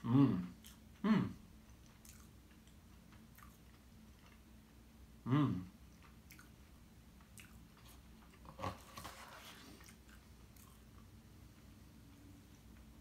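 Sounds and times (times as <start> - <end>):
mouth sound: 0.0 - 1.4, 5.2 - 5.8
chewing fried pastry: 0.0 - 13.0.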